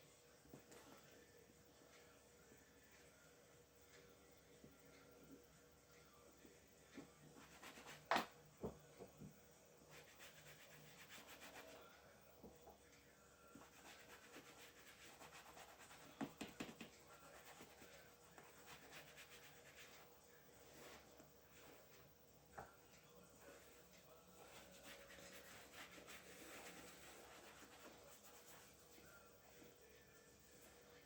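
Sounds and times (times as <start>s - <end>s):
rubbing and scratching on shoe: 10.0s - 11.8s, 13.6s - 16.4s, 17.4s - 20.0s, 24.4s - 28.9s.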